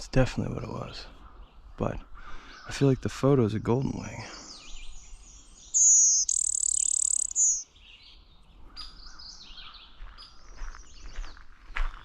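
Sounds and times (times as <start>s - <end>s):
birds chirping: 0.0s - 12.0s
warbler buzzing song: 4.5s - 11.0s.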